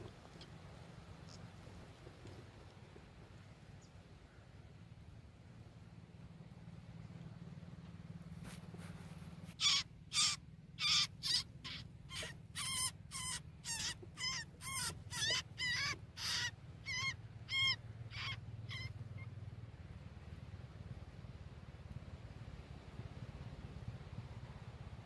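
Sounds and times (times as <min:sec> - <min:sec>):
bird calling: 0:09.5 - 0:19.4.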